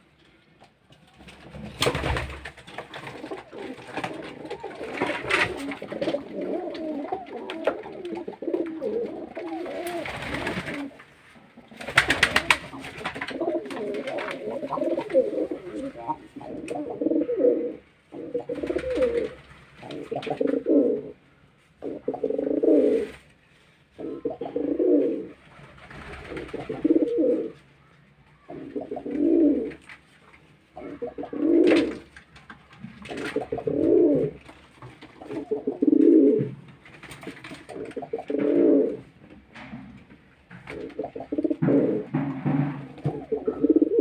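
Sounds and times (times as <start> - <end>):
pigeon cooing: 3.2 - 11.0, 12.3 - 21.2, 21.8 - 23.1, 24.0 - 25.4, 26.1 - 27.6, 28.4 - 29.8, 30.8 - 32.1, 33.0 - 34.4, 35.2 - 36.6, 37.7 - 39.1, 40.7 - 44.0.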